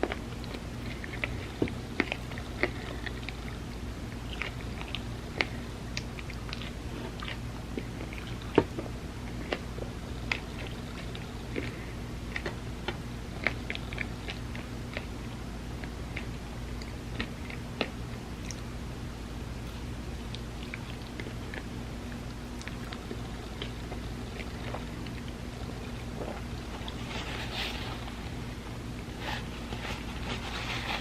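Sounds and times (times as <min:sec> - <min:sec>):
person chewing: 0:00.0 - 0:18.7, 0:19.6 - 0:31.0
low hum: 0:00.0 - 0:31.0.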